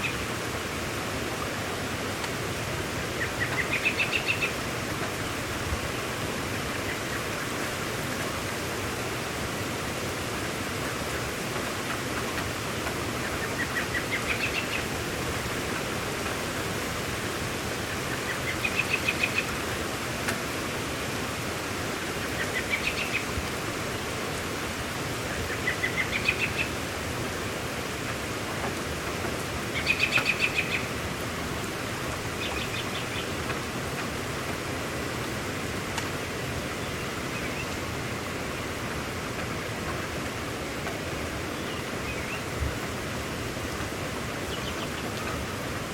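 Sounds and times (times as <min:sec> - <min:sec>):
steady rain hiss: 0:00.0 - 0:45.9.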